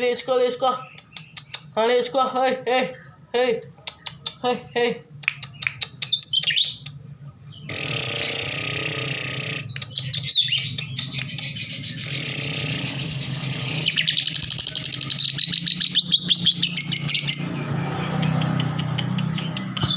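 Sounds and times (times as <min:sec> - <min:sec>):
lovebird chattering: 0:02.9 - 0:06.9, 0:07.6 - 0:17.5.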